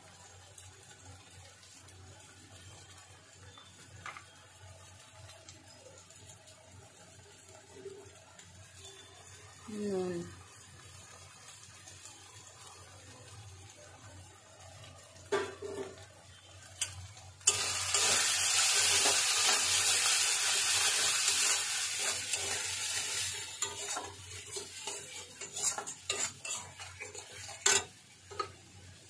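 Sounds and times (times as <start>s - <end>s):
loud sizzle: 0.0s - 29.0s
paste frying in oil: 0.0s - 29.0s
spatula scraping and clinking pan: 16.8s - 28.6s
spatula tapping pan: 21.3s - 28.6s.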